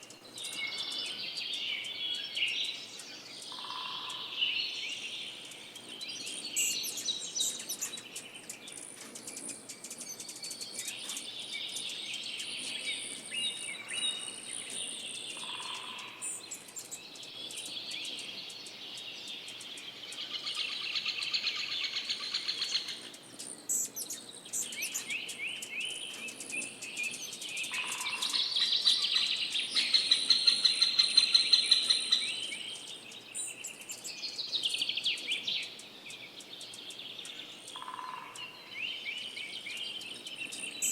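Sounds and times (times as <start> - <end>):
songbird whistles and trills: 19.7 - 40.9.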